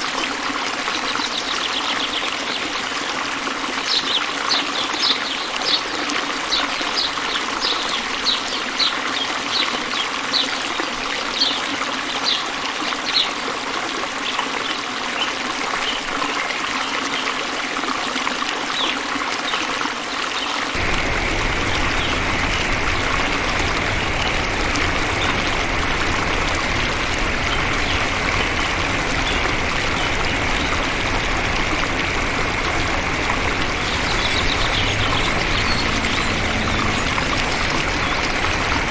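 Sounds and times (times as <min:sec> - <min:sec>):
bird chirping: 0:20.8 - 0:38.9
water running: 0:20.8 - 0:38.9
water rushing with low rumble: 0:20.8 - 0:38.9.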